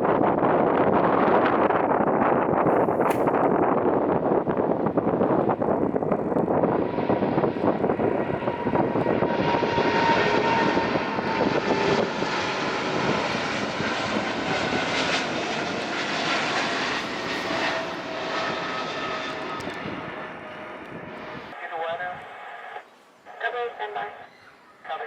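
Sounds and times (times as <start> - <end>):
jet engines running loud: 0.0 - 21.6
whining engine tones: 6.4 - 21.6.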